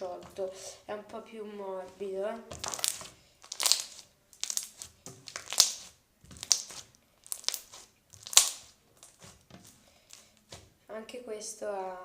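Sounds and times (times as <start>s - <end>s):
crunchy slime squishes: 1.9s - 10.8s.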